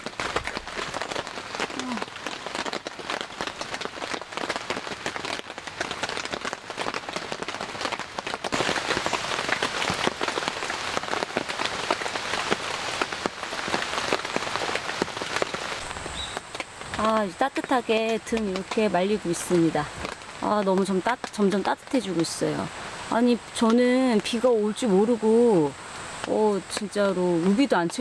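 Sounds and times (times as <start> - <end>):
raindrops striking a surface: 0.0 - 28.0.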